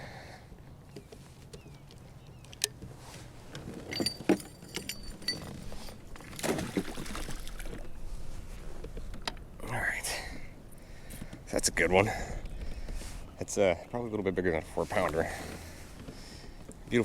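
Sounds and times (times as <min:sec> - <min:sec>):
rustle of movement: 0:00.9 - 0:09.6, 0:12.1 - 0:13.9, 0:14.5 - 0:17.0
metallic jingle: 0:03.9 - 0:06.0
clicks and knocks in kayak: 0:08.8 - 0:09.5.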